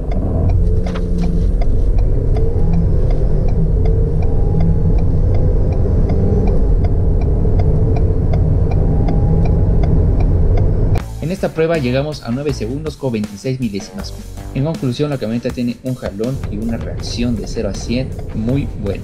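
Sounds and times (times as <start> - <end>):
car engine accelerating hard: 0.0 - 11.0
hazard-light flasher ticking: 0.0 - 11.0, 15.5 - 19.0.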